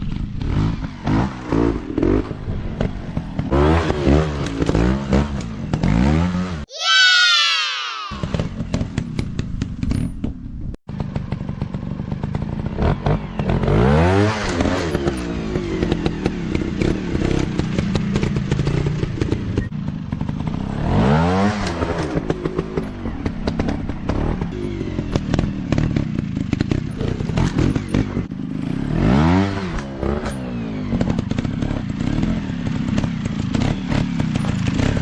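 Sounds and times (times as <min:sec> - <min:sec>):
dirt bike engine revving: 0:00.4 - 0:06.6, 0:12.8 - 0:19.4, 0:20.2 - 0:35.0.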